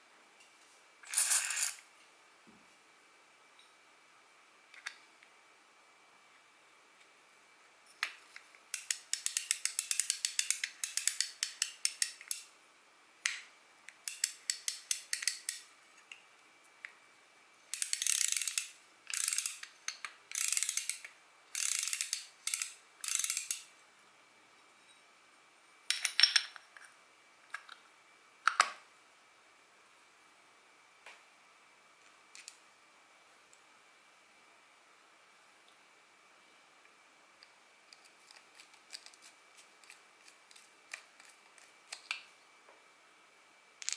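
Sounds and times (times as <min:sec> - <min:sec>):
fishing reel ratchet clicking: 0:08.8 - 0:12.4, 0:17.8 - 0:19.6, 0:20.3 - 0:21.0, 0:21.6 - 0:23.6.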